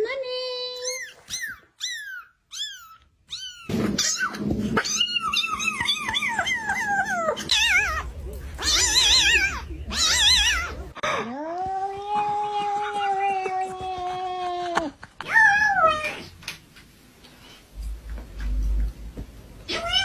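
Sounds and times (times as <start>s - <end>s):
kitten meowing: 0.8s - 10.8s.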